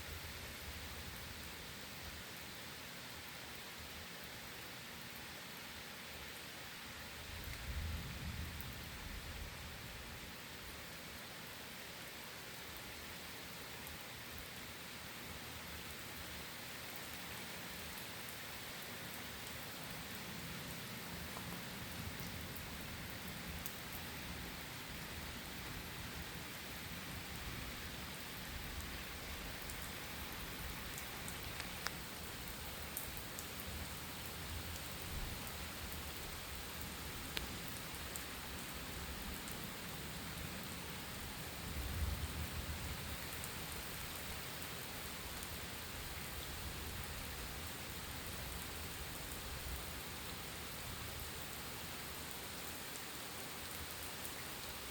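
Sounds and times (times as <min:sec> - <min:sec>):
steady rain falling: 0:00.0 - 0:54.9
raindrops ticking sharply: 0:28.7 - 0:40.7.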